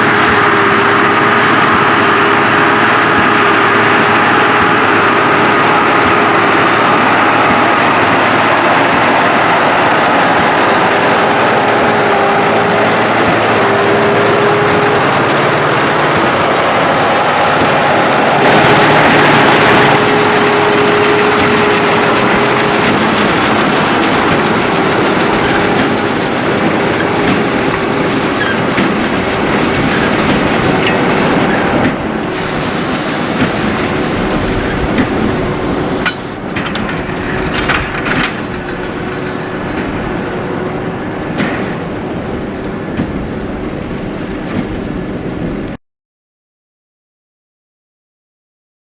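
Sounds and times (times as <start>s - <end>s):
tractor engine under load: 0.0s - 45.8s
baler clattering and rattling: 10.8s - 43.6s.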